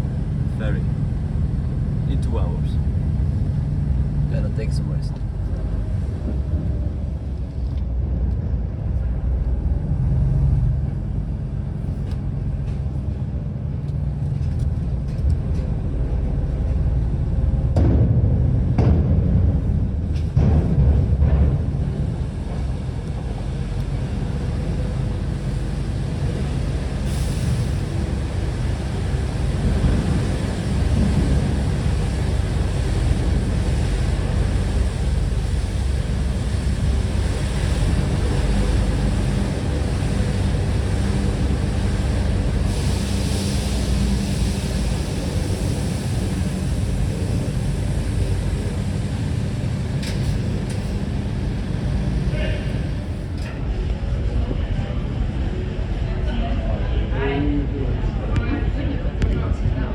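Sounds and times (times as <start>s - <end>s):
low engine rumble: 0.0s - 59.9s
hiss of wind or water: 21.2s - 53.5s.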